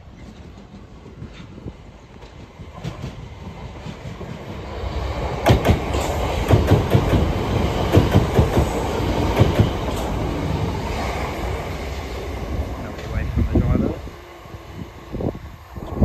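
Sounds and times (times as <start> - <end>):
train wheels clacking: 0.0 - 4.6, 5.3 - 10.7
train rumble: 0.0 - 16.0.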